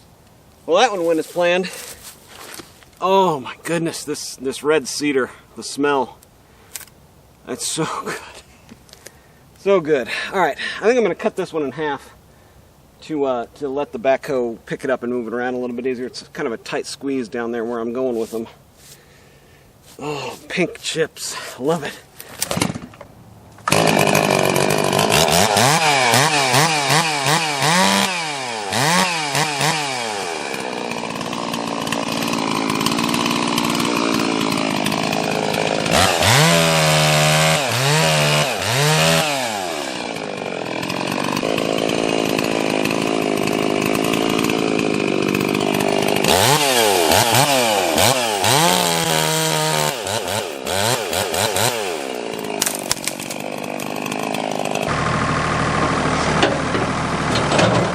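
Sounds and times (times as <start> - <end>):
chainsaw revving and cutting log: 23.6 - 57.9.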